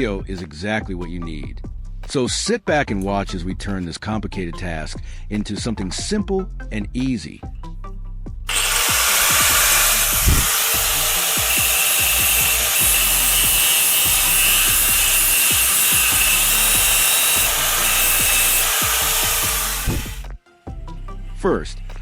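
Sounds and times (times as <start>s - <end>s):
angle grinder cutting metal: 8.5s - 20.3s.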